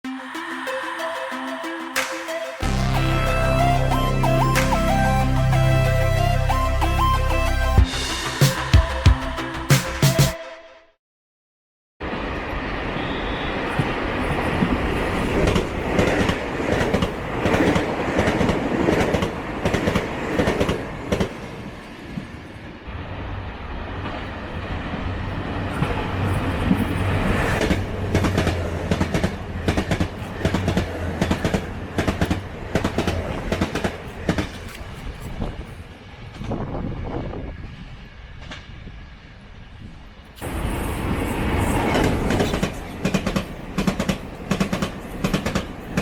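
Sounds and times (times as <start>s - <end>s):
train wheels clacking over rail joints: 27.6s - 35.3s, 41.8s - 46.0s.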